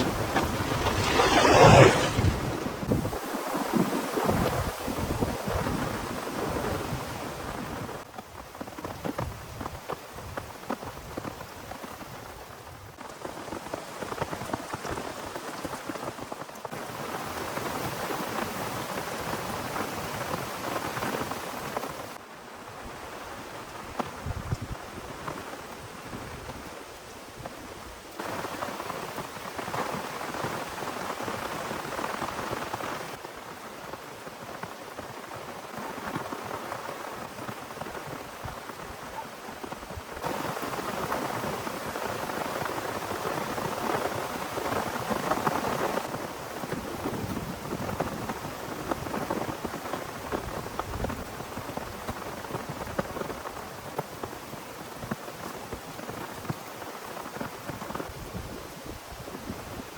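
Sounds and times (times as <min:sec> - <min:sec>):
heavy rain pouring: 0:00.0 - 0:03.2.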